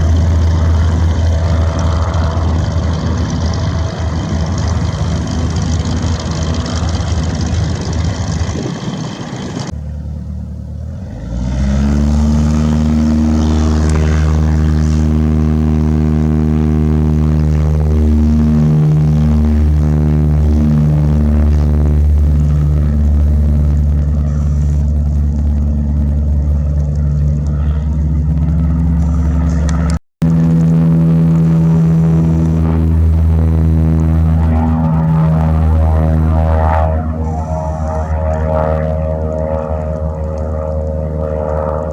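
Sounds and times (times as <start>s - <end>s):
propeller aircraft engine drone: 0.0s - 41.9s.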